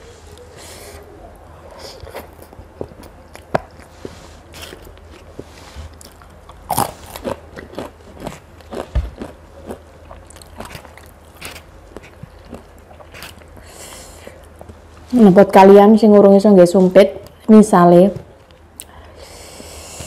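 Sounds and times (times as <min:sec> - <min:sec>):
chewing with wet smacks: 0:06.0 - 0:13.5.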